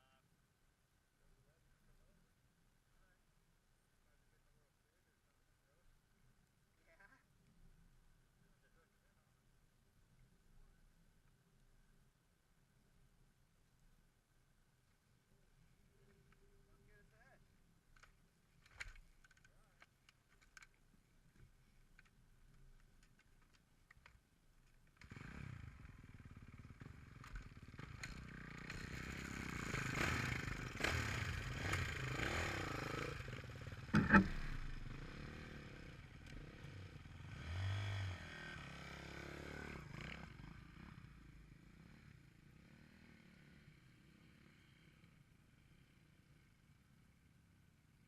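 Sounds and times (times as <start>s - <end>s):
dirt bike engine revving: 25.0s - 42.0s
sharp knock: 33.9s - 34.6s.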